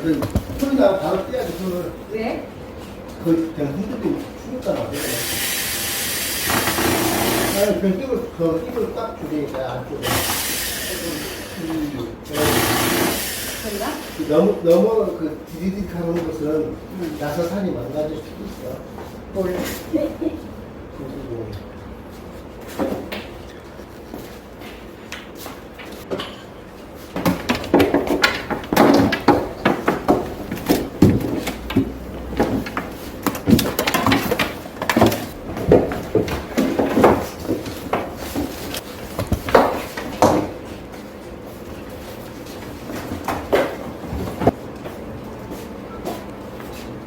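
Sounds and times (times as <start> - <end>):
hard objects knocking and clattering: 0.0 - 0.8, 27.1 - 40.6.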